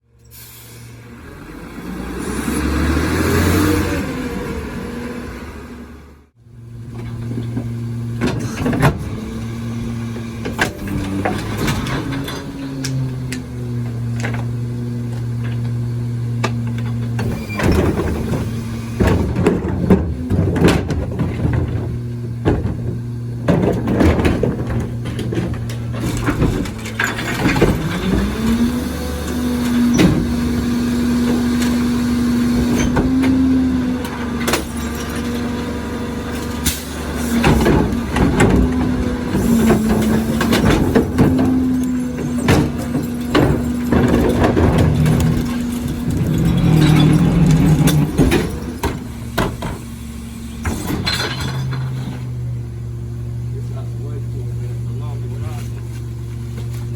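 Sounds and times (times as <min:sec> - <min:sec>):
garbage truck engine running: 0:00.0 - 0:56.9
knocks and clatter from loading: 0:06.8 - 0:32.0, 0:32.6 - 0:50.0, 0:50.6 - 0:52.6.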